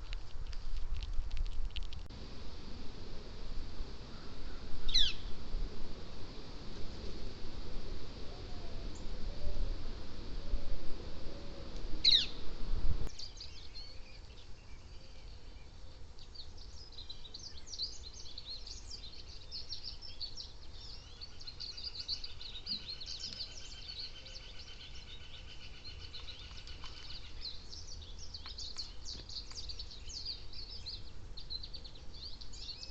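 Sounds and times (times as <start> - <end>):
low rumble: 0.0 - 13.1
birds chirping: 3.3 - 5.4, 11.3 - 32.9.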